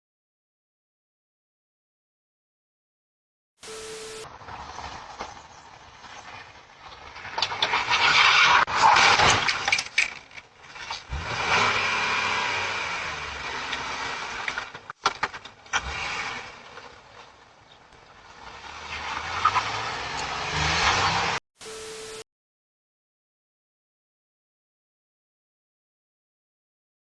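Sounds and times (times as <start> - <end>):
motor vehicle running: 3.8 - 21.4.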